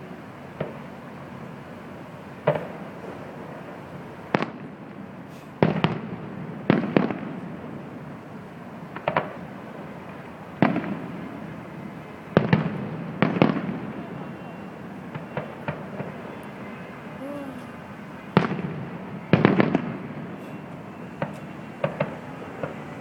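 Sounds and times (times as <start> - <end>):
fireworks booming: 2.4 - 8.2, 8.8 - 23.0.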